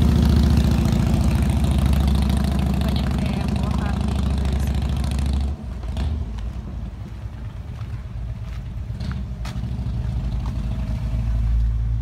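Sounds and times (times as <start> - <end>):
car engine running: 0.0 - 7.8.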